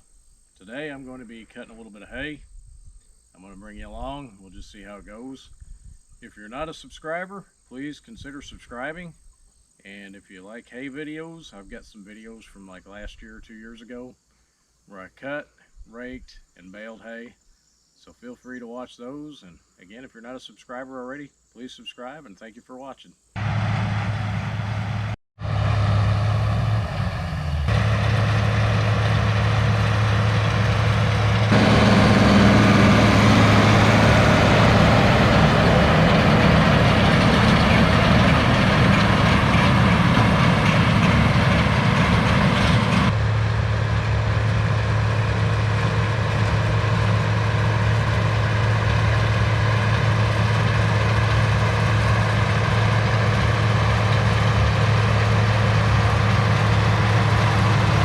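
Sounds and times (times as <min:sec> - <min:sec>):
tractor diesel engine running: 0:23.4 - 0:58.0.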